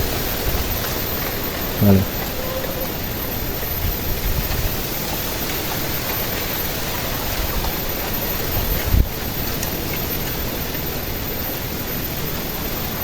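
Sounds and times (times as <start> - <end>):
strong wind on microphone: 7.3 - 9.2.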